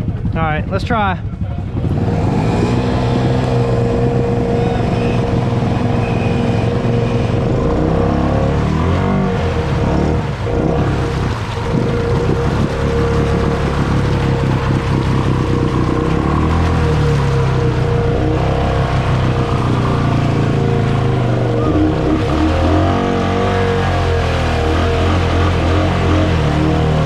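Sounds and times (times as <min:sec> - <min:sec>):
atv engine running hard: 0:00.0 - 0:27.0
vehicle pushing through mud: 0:01.3 - 0:27.0.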